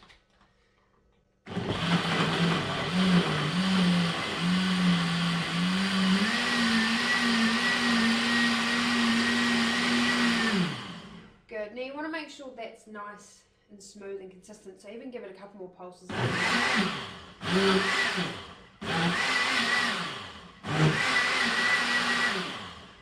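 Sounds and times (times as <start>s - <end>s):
blender motor running: 1.5s - 11.4s, 16.1s - 23.0s.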